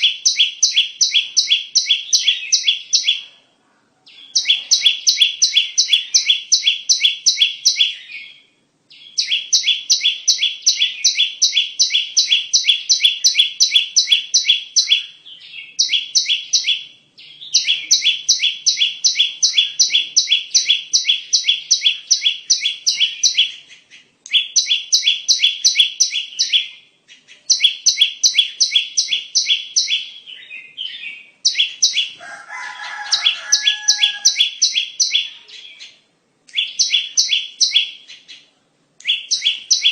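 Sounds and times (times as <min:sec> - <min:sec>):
lower bird call: 0:04.1 - 0:36.0.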